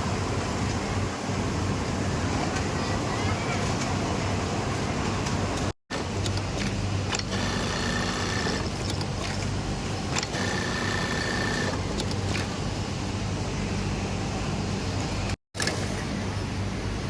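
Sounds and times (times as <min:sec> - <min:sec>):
sewing machines humming: 0:06.0 - 0:09.4, 0:10.1 - 0:12.4
sewing machine whining up: 0:07.1 - 0:08.8, 0:10.2 - 0:12.0.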